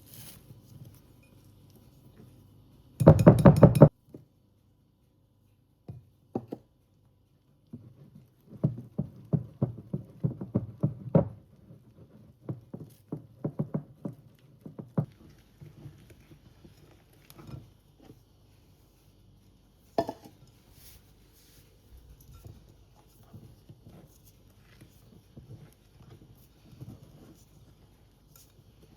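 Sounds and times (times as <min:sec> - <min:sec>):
soft knocks and taps of kitchen work: 0:03.0 - 0:04.3, 0:05.8 - 0:06.8, 0:07.6 - 0:18.2, 0:19.9 - 0:20.5.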